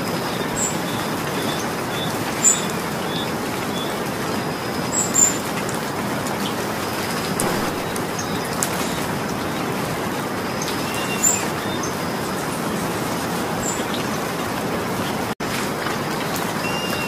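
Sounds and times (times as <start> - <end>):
rain falling: 0.0 - 17.0
short chirp: 7.3 - 8.4.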